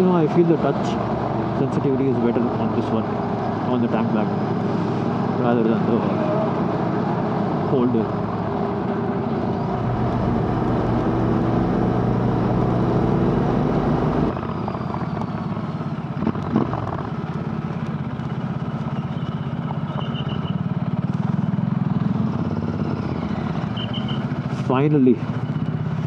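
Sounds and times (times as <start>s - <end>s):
motorcycle engine running: 9.5s - 14.4s.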